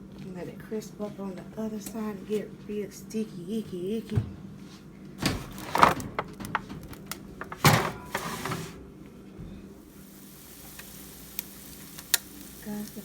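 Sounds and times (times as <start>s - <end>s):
metallic clatters of oven rack: 5.2s - 8.8s.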